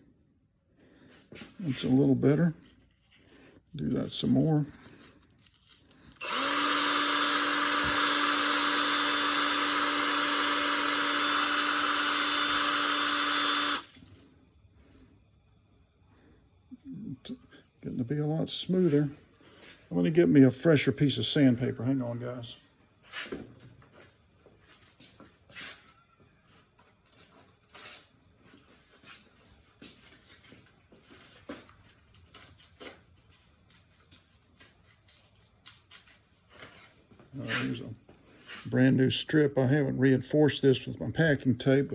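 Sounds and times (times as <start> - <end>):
electric drill motor spinning: 6.1 - 14.2
sandpaper scraping hiss: 27.7 - 28.1, 38.4 - 38.8.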